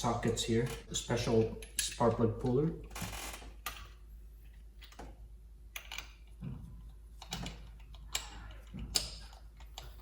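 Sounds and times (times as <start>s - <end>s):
metal clicks and knocks: 7.2s - 10.0s.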